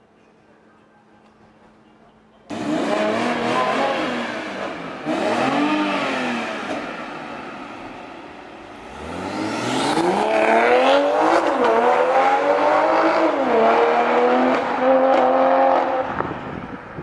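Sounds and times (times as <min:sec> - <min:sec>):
car engine accelerating hard: 0:02.5 - 0:07.5, 0:08.7 - 0:16.4.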